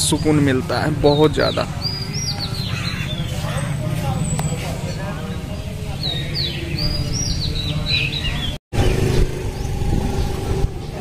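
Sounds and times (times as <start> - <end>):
small birds chirping: 0.0 - 11.0
wind on microphone: 8.8 - 11.0.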